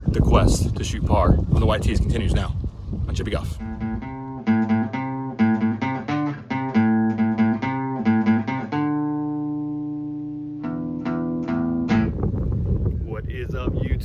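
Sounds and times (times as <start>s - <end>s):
plucked guitar picking: 3.6s - 12.9s.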